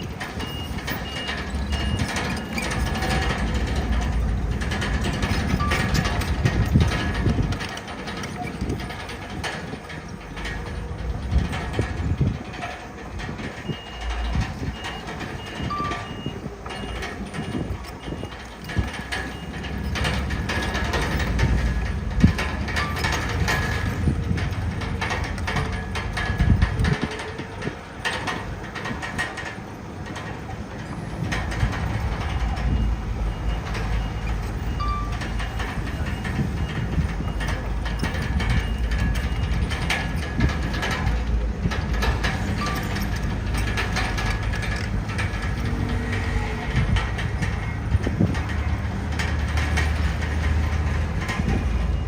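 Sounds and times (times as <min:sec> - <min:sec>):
reversing alarm beeping: 0:00.0 - 0:03.8, 0:05.4 - 0:06.1, 0:13.6 - 0:20.2, 0:32.3 - 0:40.5, 0:42.5 - 0:43.1
diesel engine running: 0:00.0 - 0:52.0
metallic track clanking: 0:00.0 - 0:52.0.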